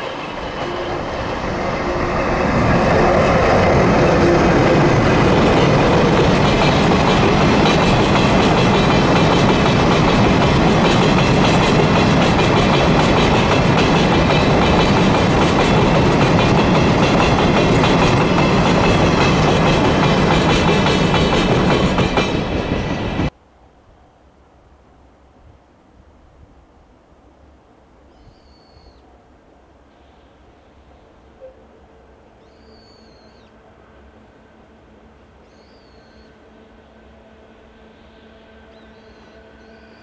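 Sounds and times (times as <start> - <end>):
train wheels on rails: 0.0 - 23.4.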